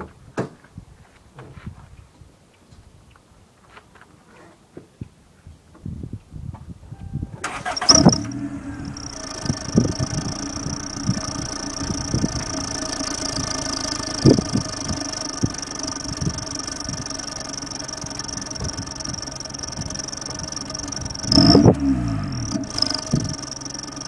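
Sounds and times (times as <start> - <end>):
car engine idling: 7.4 - 24.0.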